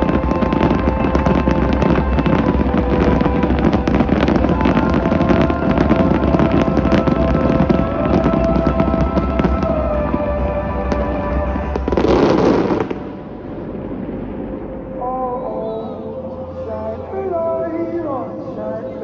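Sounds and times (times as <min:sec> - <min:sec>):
fireworks bursting and crackling: 0:00.0 - 0:13.1
music with long held notes: 0:00.0 - 0:19.0.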